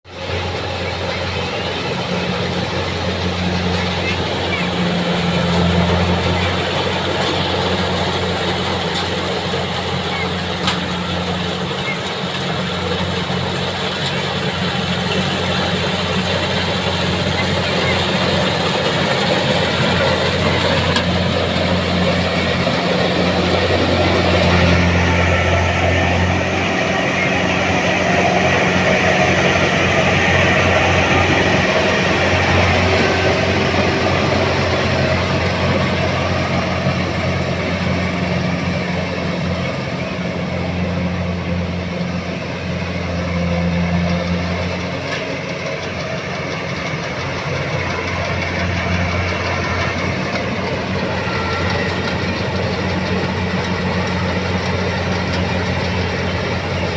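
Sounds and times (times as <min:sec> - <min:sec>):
combine harvester engine humming: 0:00.1 - 0:56.9
machinery noise: 0:00.1 - 0:56.9.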